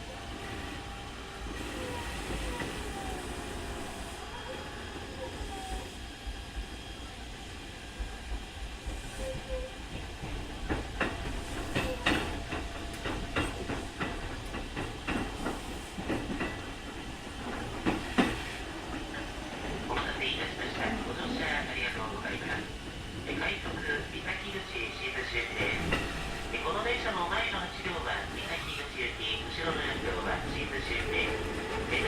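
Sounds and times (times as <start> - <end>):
train interior rumble and hiss: 0.0 - 32.0
wheels clacking over rail joints: 9.9 - 20.1.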